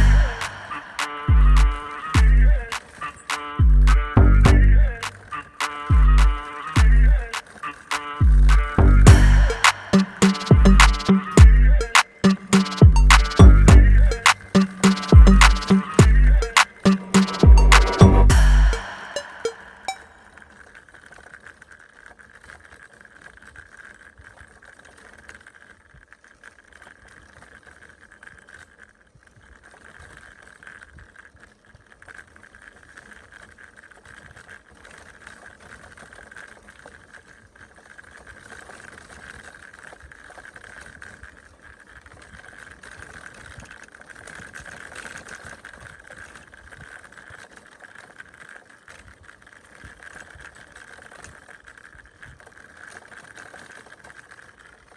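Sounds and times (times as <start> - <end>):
bicycle rolling and whirring: 21.4 - 54.9.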